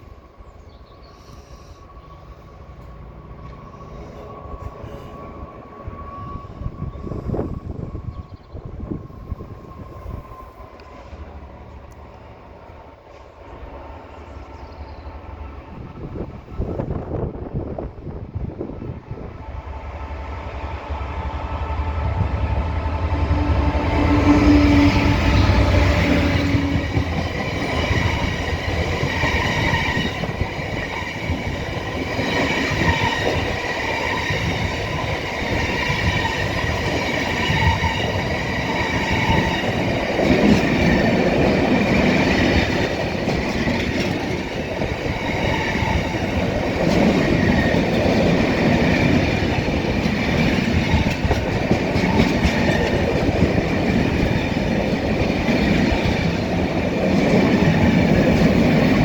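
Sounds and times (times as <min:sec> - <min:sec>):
freight train rolling past: 0:00.0 - 0:59.0
wheels squealing on rails: 0:00.6 - 0:17.3, 0:19.2 - 0:59.0
wheels clacking over rail joints: 0:24.7 - 0:59.0.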